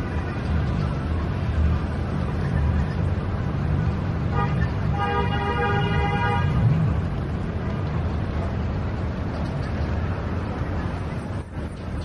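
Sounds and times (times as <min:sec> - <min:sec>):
street traffic rumble: 0:00.0 - 0:12.0
vehicle horn honking: 0:04.3 - 0:06.6.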